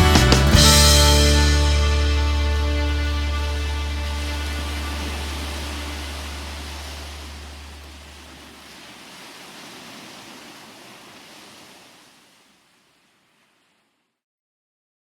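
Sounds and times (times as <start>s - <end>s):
music chord ringing out: 0.6s - 6.8s
sea surf hiss: 3.6s - 13.7s.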